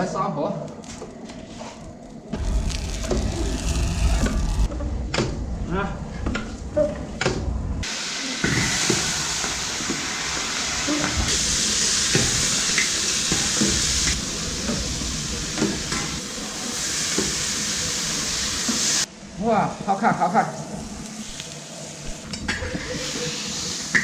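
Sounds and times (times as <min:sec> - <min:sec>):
crabs sizzling in a pan: 0:02.4 - 0:04.7, 0:07.8 - 0:19.1, 0:20.1 - 0:24.0.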